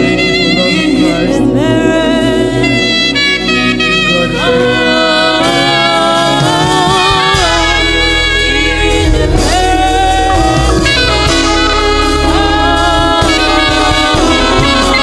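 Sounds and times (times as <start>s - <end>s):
keyboard chords: 0.0s - 15.0s
worship band playing: 0.0s - 15.0s
deep bass line: 5.4s - 15.0s
lead melody with held notes: 7.1s - 15.0s.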